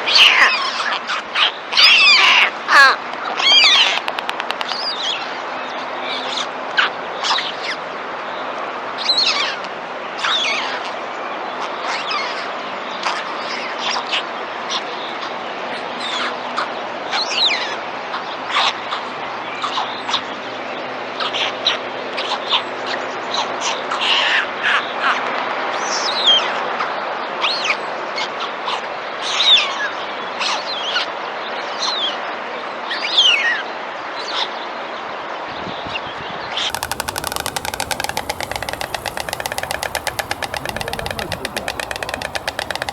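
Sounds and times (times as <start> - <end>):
background hiss: 36.7 - 42.9
birds chirping and calling: 36.7 - 42.9.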